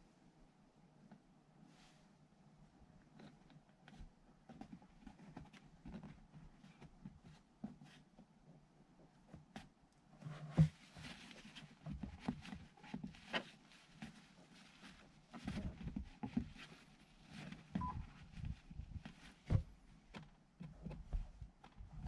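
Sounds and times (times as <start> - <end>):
short beep: 17.8 - 18.0.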